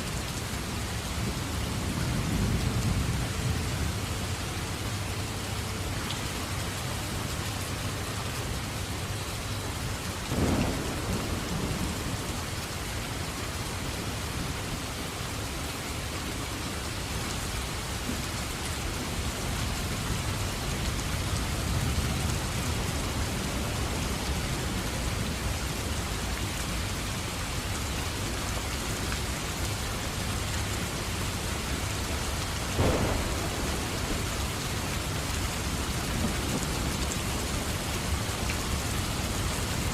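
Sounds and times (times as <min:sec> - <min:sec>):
heavy rain: 0:00.0 - 0:39.9
thunder rumbling: 0:10.3 - 0:13.2, 0:32.0 - 0:39.3.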